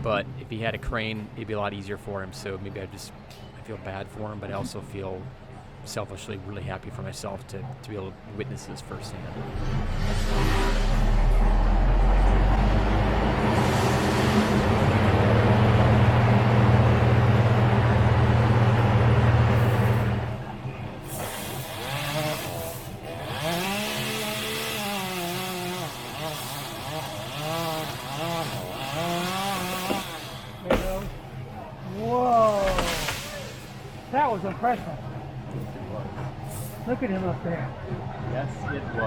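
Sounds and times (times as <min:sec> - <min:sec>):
chainsaw revving: 0:21.2 - 0:30.7.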